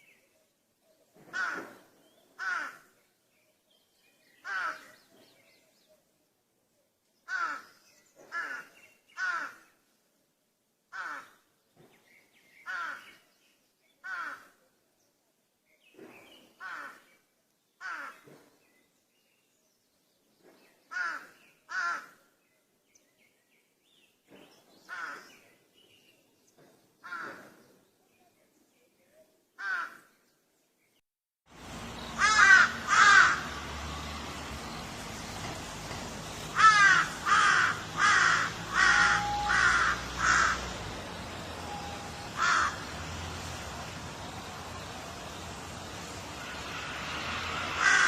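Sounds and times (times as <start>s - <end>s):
crows cawing: 1.3s - 1.8s, 2.4s - 2.9s, 4.4s - 4.9s, 7.3s - 7.7s, 8.3s - 9.7s, 10.9s - 11.4s, 12.7s - 13.1s, 14.0s - 14.6s, 16.6s - 17.1s, 17.8s - 18.2s, 20.9s - 22.2s, 24.9s - 25.3s, 29.6s - 30.1s, 32.2s - 33.7s, 36.5s - 40.8s, 42.0s - 43.0s, 47.8s - 48.0s
steady hiss: 39.6s - 48.0s.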